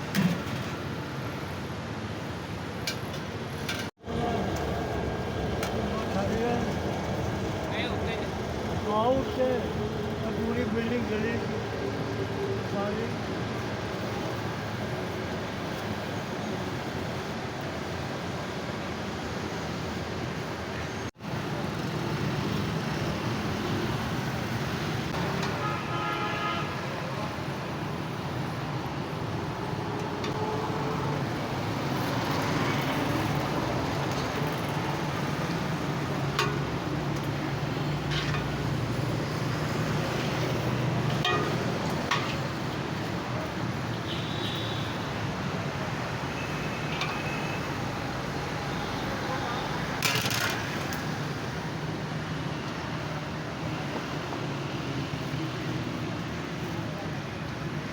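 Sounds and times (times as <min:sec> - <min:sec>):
roadside traffic: 0:00.0 - 0:57.9
car horn honk: 0:25.5 - 0:26.8.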